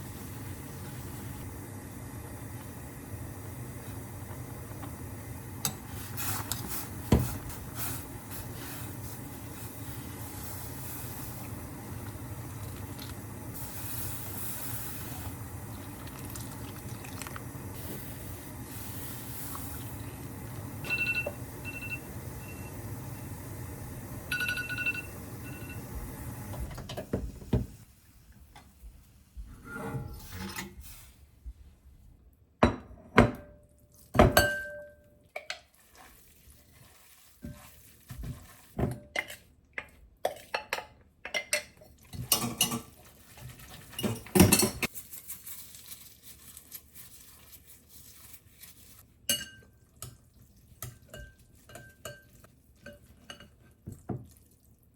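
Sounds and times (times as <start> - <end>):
dishes and utensils clinking: 34.2 - 35.6, 40.2 - 43.0, 43.9 - 44.9, 49.3 - 50.2, 50.8 - 53.7.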